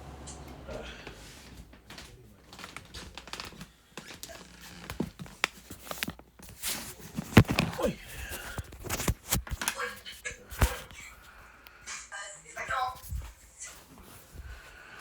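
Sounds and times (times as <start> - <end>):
wrapper crinkling and clattering: 1.7 - 11.0.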